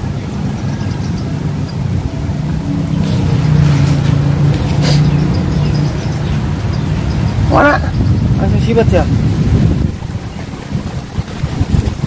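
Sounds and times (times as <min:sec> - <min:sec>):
motor engine running: 0:00.0 - 0:07.6.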